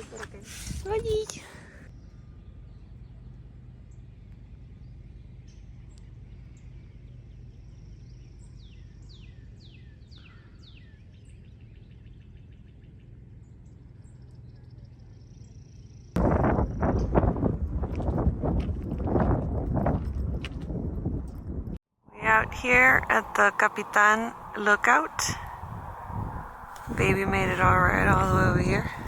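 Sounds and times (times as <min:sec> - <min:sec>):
loud sudden noise: 0:22.1 - 0:29.0
steady low hum: 0:22.1 - 0:29.0
bird whistling falling notes: 0:22.5 - 0:29.0.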